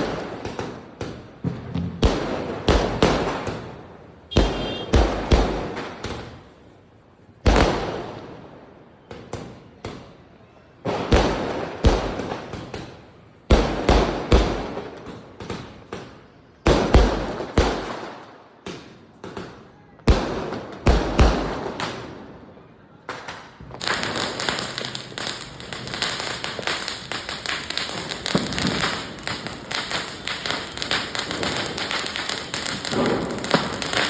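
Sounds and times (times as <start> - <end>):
firecrackers banging: 0.0 - 6.6, 23.1 - 34.0.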